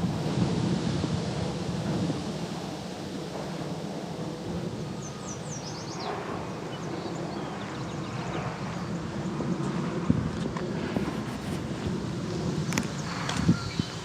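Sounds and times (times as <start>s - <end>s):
steady low rumble: 0.0s - 14.0s
birds chirping: 4.7s - 9.8s, 12.3s - 14.0s.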